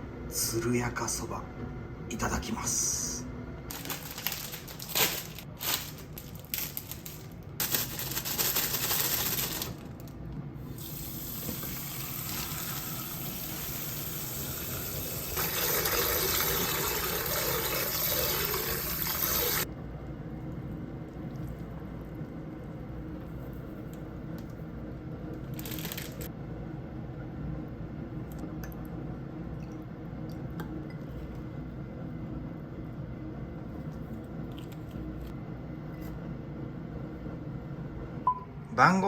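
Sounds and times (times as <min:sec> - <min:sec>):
tap running into a sink: 0:11.3 - 0:12.5.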